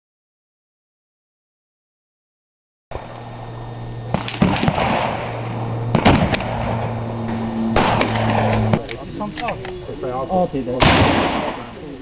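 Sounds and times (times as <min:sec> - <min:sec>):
steady low hum: 0:02.9 - 0:12.0
gunfire cracks: 0:04.1 - 0:07.0, 0:07.8 - 0:08.9, 0:10.8 - 0:11.8.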